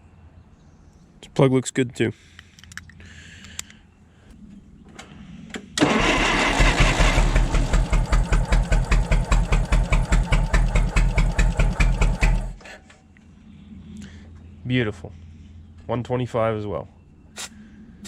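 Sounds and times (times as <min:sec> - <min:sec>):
engine cranking on starter: 0:05.8 - 0:12.6.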